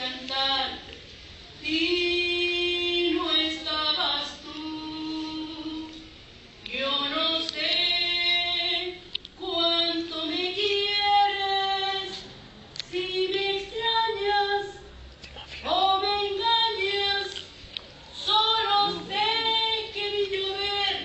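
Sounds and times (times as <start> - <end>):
woman singing unaccompanied: 0.0 - 1.0, 1.6 - 12.3, 12.9 - 14.9, 15.6 - 17.4, 18.1 - 21.0.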